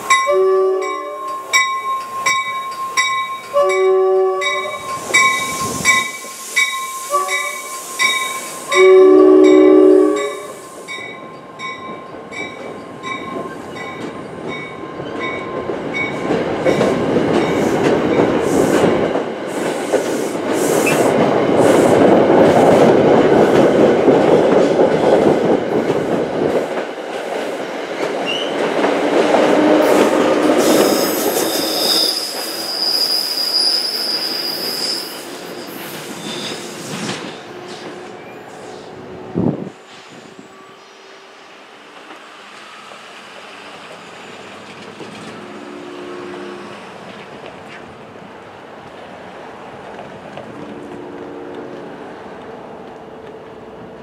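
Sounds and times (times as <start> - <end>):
train cars rumbling and clattering: 0.0 - 40.9, 41.7 - 54.0
train horn blast: 0.1 - 1.3, 3.5 - 6.1, 6.7 - 10.9, 29.2 - 32.2, 45.4 - 46.9, 50.6 - 51.8
bell ringing: 0.1 - 8.4
wheels squealing: 29.6 - 38.9.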